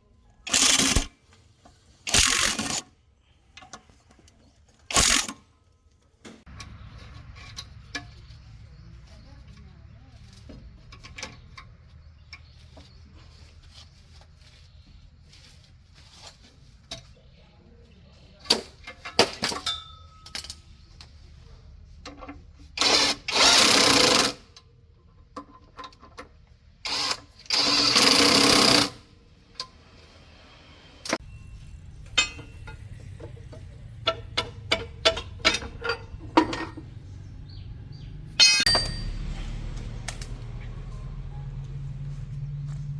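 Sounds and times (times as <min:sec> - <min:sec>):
pneumatic tool bursts: 0:00.5 - 0:01.1, 0:02.1 - 0:02.9, 0:04.9 - 0:05.4, 0:22.8 - 0:24.4, 0:26.8 - 0:29.0.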